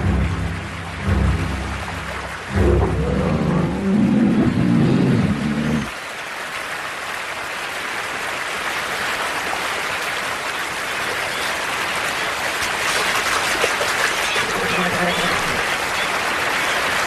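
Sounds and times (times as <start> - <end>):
low music: 0.0 - 5.9
flowing river water: 0.0 - 17.0.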